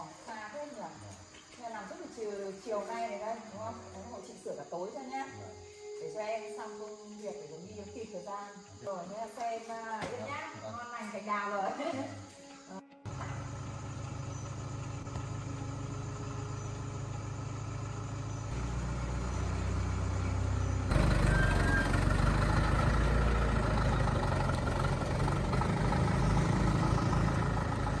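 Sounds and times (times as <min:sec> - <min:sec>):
truck engine running: 0:13.1 - 0:28.0.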